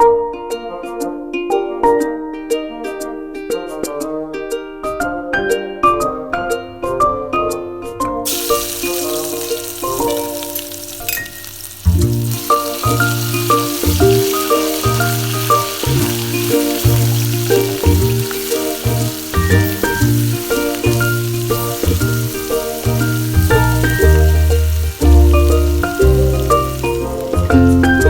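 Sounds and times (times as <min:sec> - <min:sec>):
food sizzling in hot oil: 0:08.3 - 0:28.0
background music with bass line: 0:11.9 - 0:28.0.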